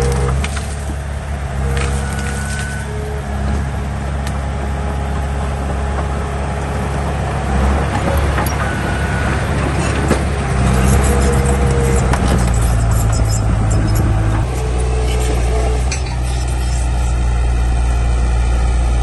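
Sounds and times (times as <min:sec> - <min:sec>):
heavy diesel engine running: 0:00.0 - 0:19.0
brief thin squeaks: 0:10.7 - 0:14.1, 0:14.9 - 0:17.2.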